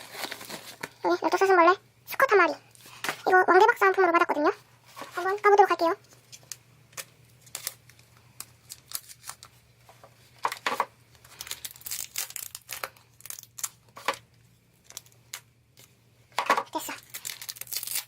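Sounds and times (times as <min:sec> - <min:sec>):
packaging crackling and rustling: 0:00.0 - 0:01.0, 0:06.1 - 0:18.0
packaging tearing: 0:00.0 - 0:01.0, 0:08.6 - 0:09.5, 0:11.2 - 0:14.0, 0:16.8 - 0:18.0.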